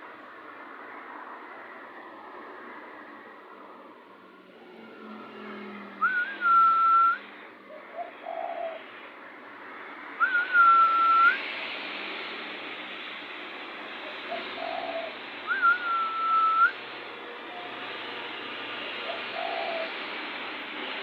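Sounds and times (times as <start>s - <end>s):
loud whistled notes: 6.0s - 7.3s, 10.2s - 11.5s, 15.4s - 19.9s
dove cooing: 7.7s - 9.1s, 14.0s - 16.6s, 19.0s - 20.1s.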